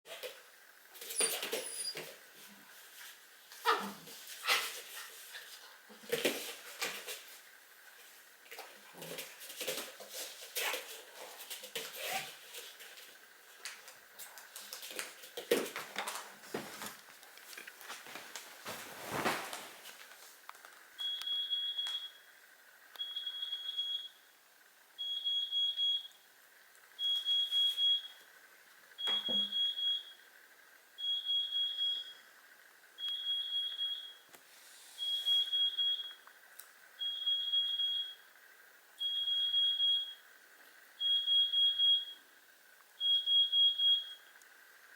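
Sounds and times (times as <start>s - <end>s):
electronic alarm beeping: 21.0s - 22.3s, 23.0s - 24.2s, 25.0s - 26.2s, 27.0s - 28.2s, 29.0s - 30.2s, 31.0s - 32.3s, 33.0s - 34.2s, 35.0s - 36.2s, 37.0s - 38.2s, 39.0s - 40.2s, 41.0s - 42.2s, 43.0s - 44.3s.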